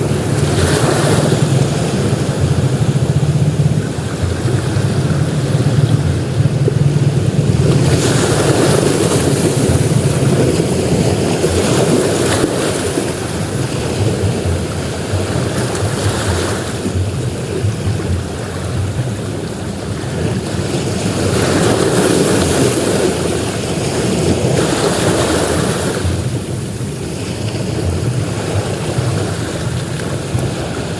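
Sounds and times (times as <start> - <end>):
steady low rumble: 0.0 - 15.9
waves breaking on shore: 0.0 - 30.9.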